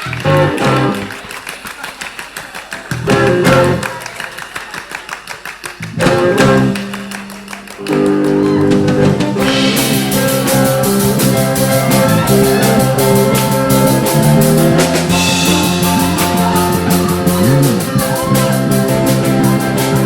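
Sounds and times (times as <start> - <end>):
electric guitar: 0.0 - 1.1, 2.9 - 4.0, 5.8 - 20.0
live rock band playing: 0.0 - 1.1, 2.9 - 4.0, 5.8 - 20.0
drum kit: 2.9 - 4.0, 5.8 - 20.0.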